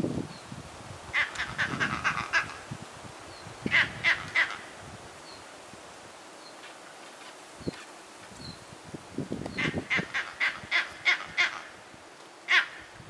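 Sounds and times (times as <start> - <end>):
bird calling harsh notes: 9.5 - 11.8, 12.5 - 12.9.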